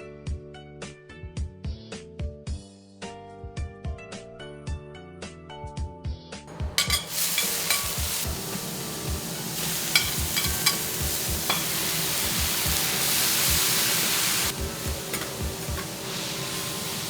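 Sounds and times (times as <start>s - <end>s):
plucked background music: 3.0s - 17.0s
food sizzling on a griddle: 6.5s - 17.0s.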